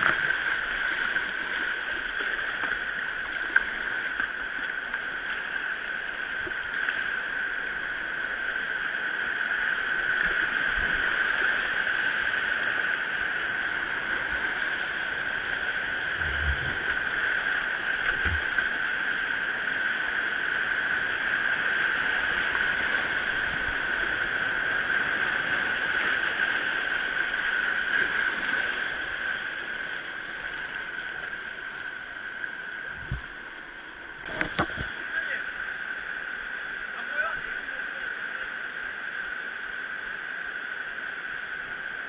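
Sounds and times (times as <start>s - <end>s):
dull low thumps: 16.1s - 17.0s.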